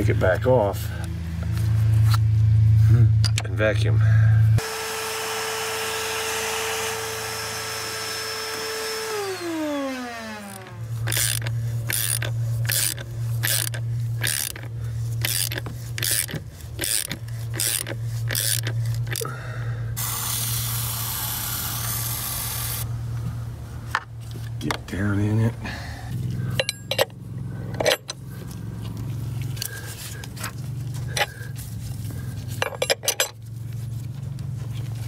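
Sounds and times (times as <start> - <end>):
small vacuum cleaner whining: 4.6 - 12.2
ratchet clicking: 10.4 - 19.3
aerosol can spraying: 20.0 - 22.8.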